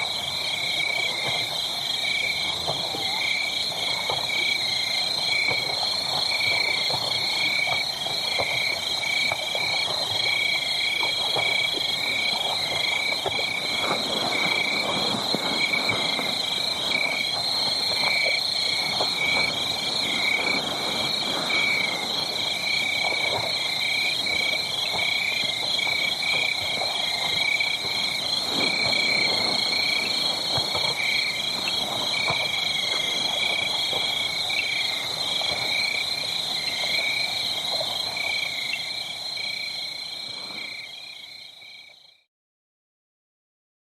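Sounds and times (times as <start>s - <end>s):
wood fire crackling: 2.1s - 37.1s.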